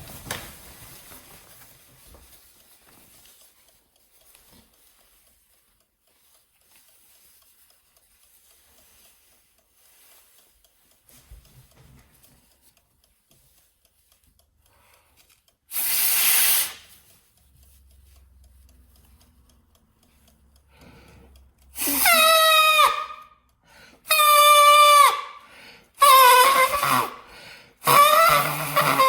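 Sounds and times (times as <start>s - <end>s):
jacket rushing hiss: 15.7s - 16.9s.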